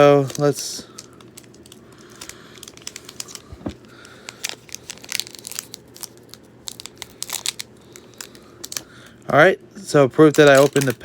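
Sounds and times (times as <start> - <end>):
foil wrapper crinkling: 0.0 - 9.2, 10.1 - 11.0.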